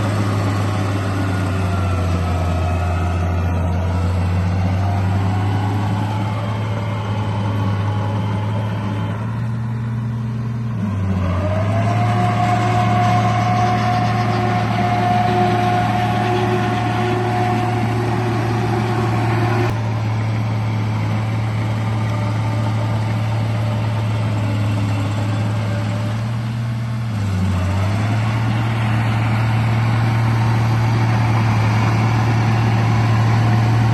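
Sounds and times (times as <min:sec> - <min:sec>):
toy bulldozer motor drone: 0:11.0 - 0:19.9.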